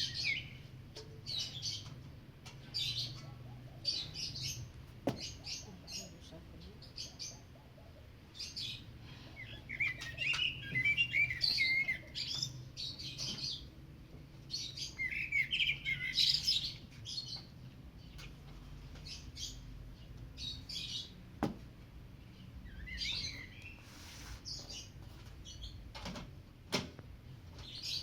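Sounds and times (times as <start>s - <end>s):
bird warbling song: 0.0s - 13.7s, 14.4s - 21.2s, 22.2s - 25.8s
small birds chirping: 0.0s - 26.2s, 27.2s - 28.0s.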